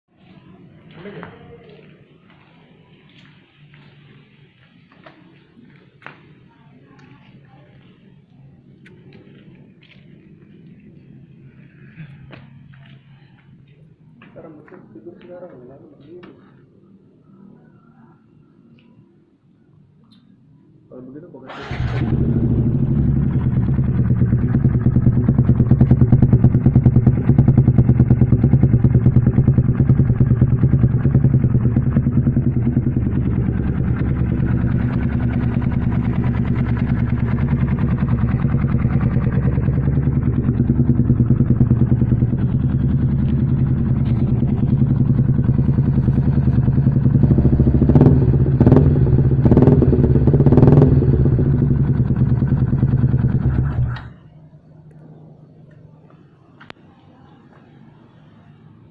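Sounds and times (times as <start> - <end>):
motorcycle engine running: 21.5 - 54.3.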